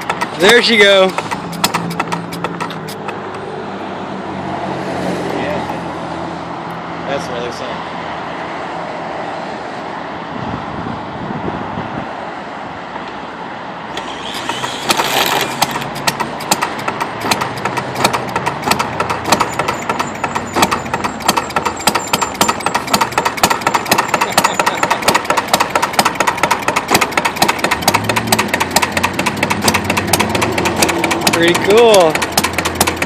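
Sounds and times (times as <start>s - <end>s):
single-cylinder engine popping: 0.0s - 3.5s, 13.9s - 33.0s.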